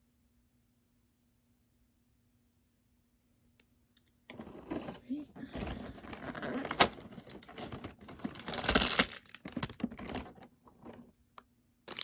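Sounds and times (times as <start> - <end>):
plastic packaging crinkling: 4.4 - 11.1.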